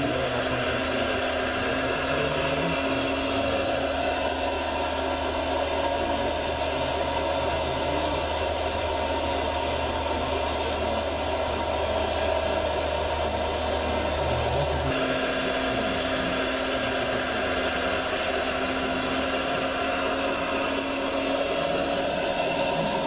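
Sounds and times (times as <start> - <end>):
low even hum: 0.0 - 23.0
small electric motors whining: 0.0 - 23.0.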